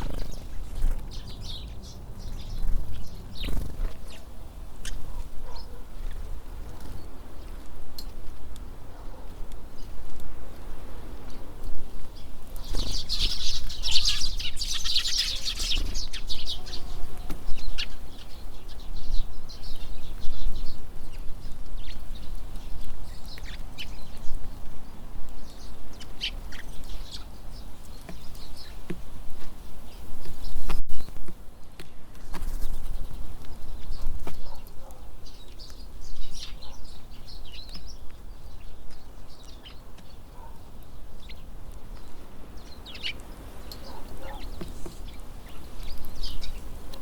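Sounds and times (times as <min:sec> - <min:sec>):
birds chirping: 0:00.0 - 0:10.1, 0:11.1 - 0:31.2, 0:32.4 - 0:47.0
wind rumble on microphone: 0:00.0 - 0:14.5.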